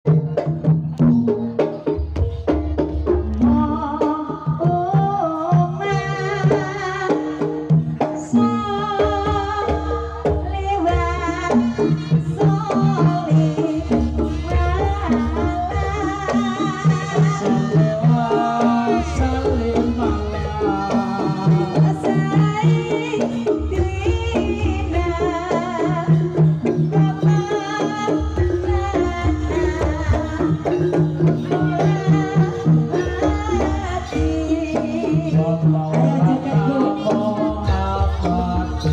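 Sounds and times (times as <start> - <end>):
gamelan music: 0.1 - 38.9
hand drumming: 0.1 - 38.9
woman singing with vibrato: 3.4 - 38.9.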